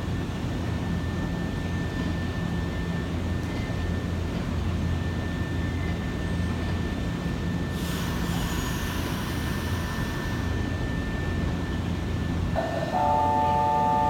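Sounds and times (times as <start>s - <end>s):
electric train humming: 4.0s - 14.0s
train air hiss: 7.7s - 10.8s.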